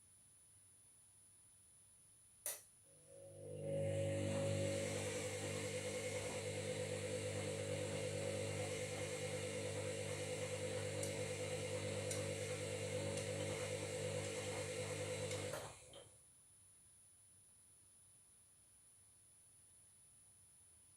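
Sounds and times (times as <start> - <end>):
washing machine running: 3.0 - 16.1.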